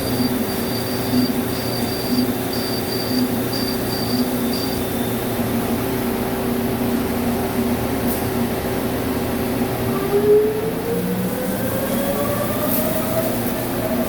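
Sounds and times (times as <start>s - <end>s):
lathe humming and whining: 0.0s - 7.7s, 9.0s - 14.0s.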